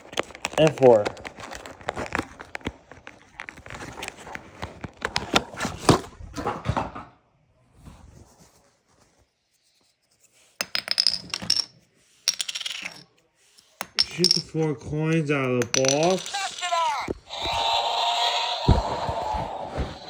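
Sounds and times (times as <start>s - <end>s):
plastic packaging handled: 0.0s - 6.0s
plastic coins clicking and clinking: 10.6s - 16.8s.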